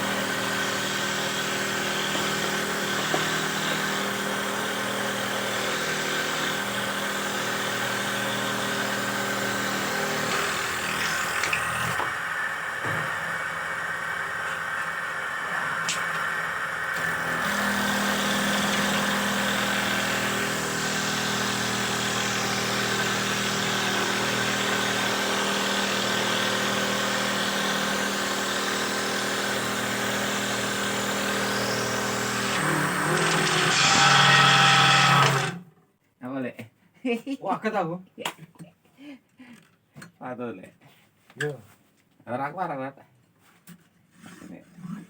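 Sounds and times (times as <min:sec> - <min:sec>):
machine motor running: 0:00.0 - 0:35.6.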